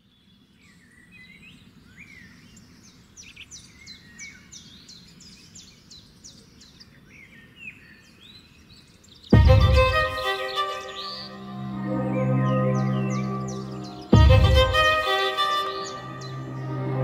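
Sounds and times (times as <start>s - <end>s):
birds singing: 0.0s - 17.0s
music with deep hit: 9.4s - 10.6s, 11.4s - 17.0s.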